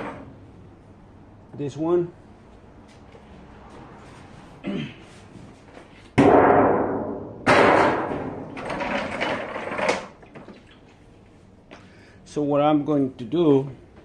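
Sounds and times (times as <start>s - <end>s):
loud knocks with scraping rattle: 6.2s - 10.2s.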